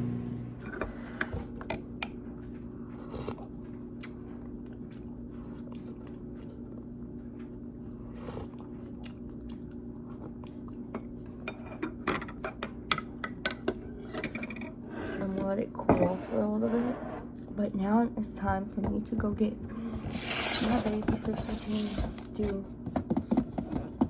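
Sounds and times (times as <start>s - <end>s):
microwave oven humming: 0.0s - 18.8s.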